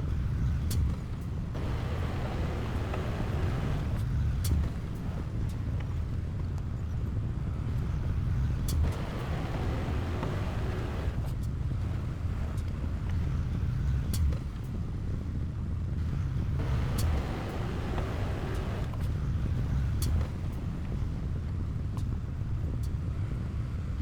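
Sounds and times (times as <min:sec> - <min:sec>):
diesel engine rumbling: 0:01.6 - 0:04.1, 0:08.2 - 0:11.3, 0:16.0 - 0:20.8.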